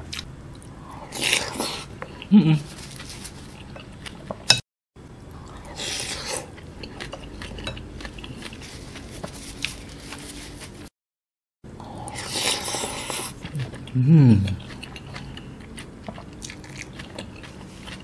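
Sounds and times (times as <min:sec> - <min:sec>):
close chewing: 0:05.4 - 0:10.3, 0:12.0 - 0:18.0.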